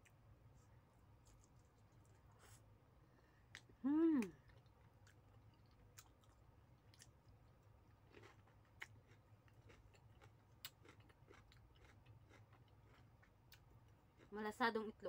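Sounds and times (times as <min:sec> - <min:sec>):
close-up chewing food: 0:03.5 - 0:14.4.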